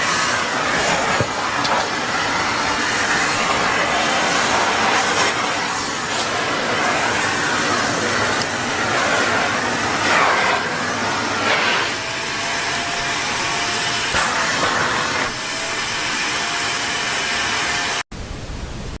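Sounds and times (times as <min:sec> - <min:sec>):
vacuum cleaner running: 0:00.0 - 0:18.1.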